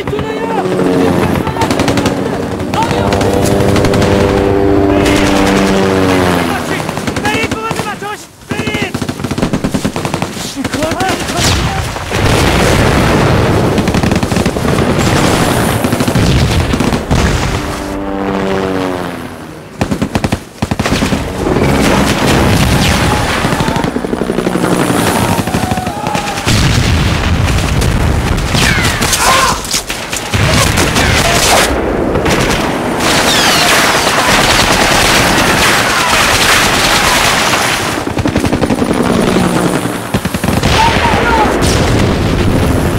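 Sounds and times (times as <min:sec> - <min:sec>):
machine-gun fire: 0:01.4 - 0:07.9, 0:08.7 - 0:17.6, 0:19.8 - 0:29.2, 0:29.8 - 0:42.9
explosions booming: 0:11.2 - 0:17.8, 0:20.8 - 0:24.0, 0:25.2 - 0:29.2, 0:40.5 - 0:42.9.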